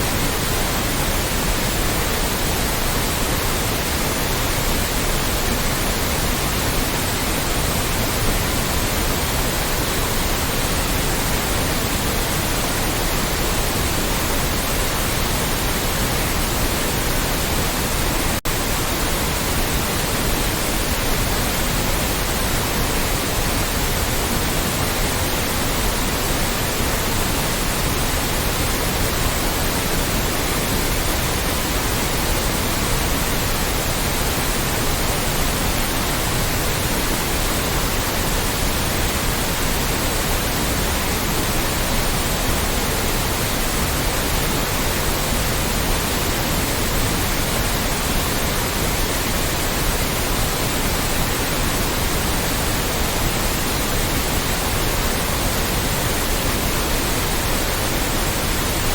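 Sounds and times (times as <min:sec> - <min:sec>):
white noise hiss: 0:00.0 - 0:58.9.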